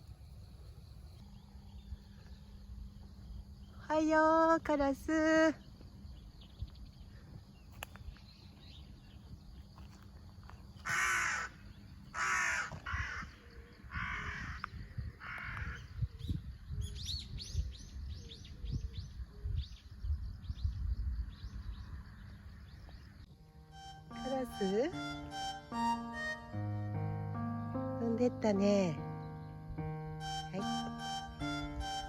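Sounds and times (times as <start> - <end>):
crow cawing: 10.8 - 15.9.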